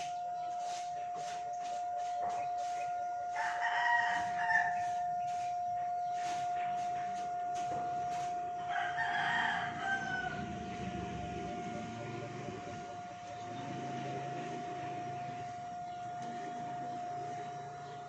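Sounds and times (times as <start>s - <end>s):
high-pitched hum: 0.0s - 18.0s
rooster crowing: 2.0s - 6.9s, 8.1s - 12.3s.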